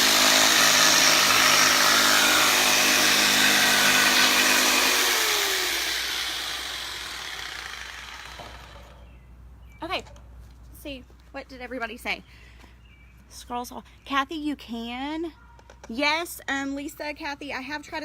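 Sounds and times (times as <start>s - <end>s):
electric jigsaw cutting wood: 0.0s - 8.9s.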